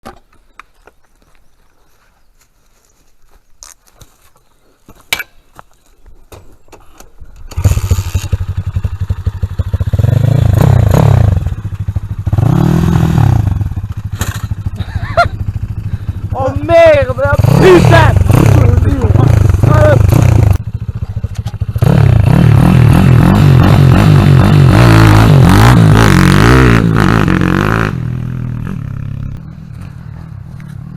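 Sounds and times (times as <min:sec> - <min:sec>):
dirt bike engine revving: 0:07.5 - 0:30.9.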